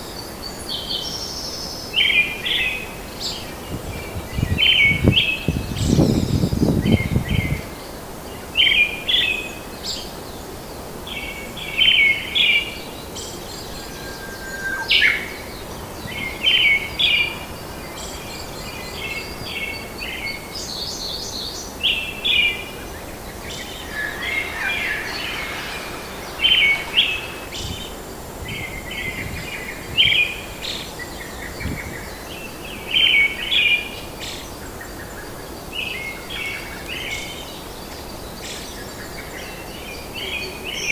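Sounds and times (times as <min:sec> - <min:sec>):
high whistled bird notes: 0:23.5 - 0:27.8
steady background hiss: 0:23.5 - 0:27.8
birds chirping: 0:23.6 - 0:27.6.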